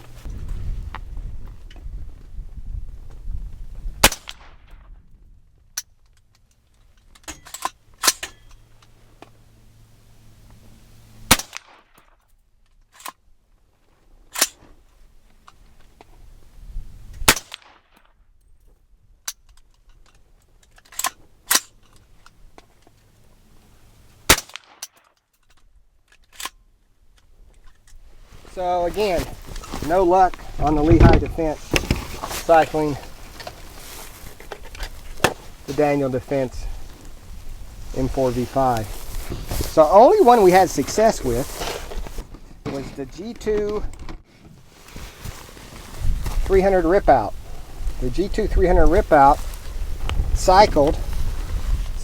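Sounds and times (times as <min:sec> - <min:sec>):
rifle shots: 0:04.0 - 0:04.6, 0:11.3 - 0:11.8, 0:24.3 - 0:24.8.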